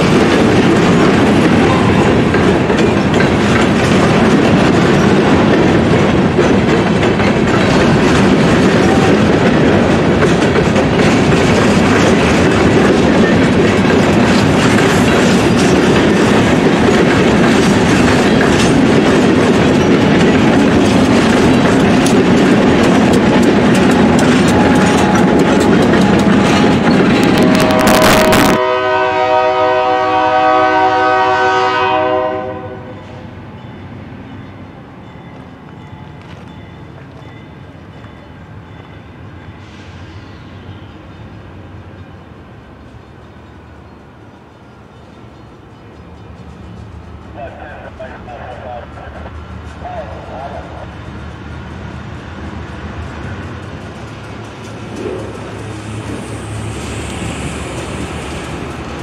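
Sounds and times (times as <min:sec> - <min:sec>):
freight train wheels clattering: 0:00.0 - 0:31.2, 0:33.0 - 0:59.0
locomotive air horn chord: 0:27.4 - 0:33.0.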